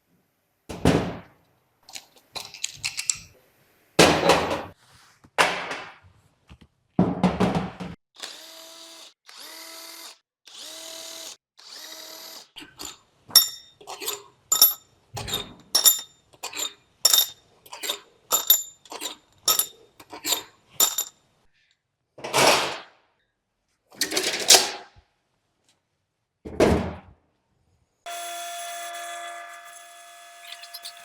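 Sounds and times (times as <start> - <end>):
electric power tool whirring: 8.2 - 12.5, 28.1 - 31.0
metal scraping on metal: 12.8 - 21.1, 28.1 - 31.0
metal engine parts clinking: 13.4 - 21.1.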